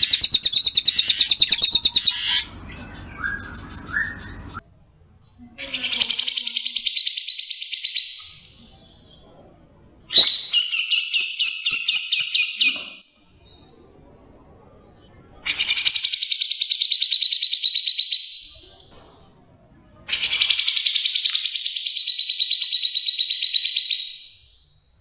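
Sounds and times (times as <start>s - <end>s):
bird singing repeated notes: 0.0s - 4.6s.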